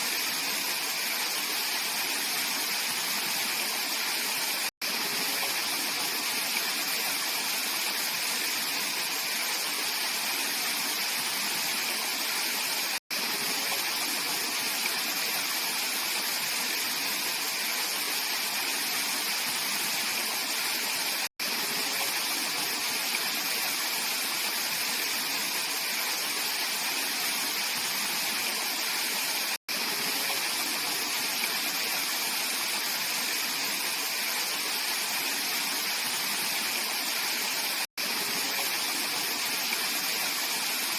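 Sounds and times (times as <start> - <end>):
stream water flowing and splashing: 0.0 - 40.9.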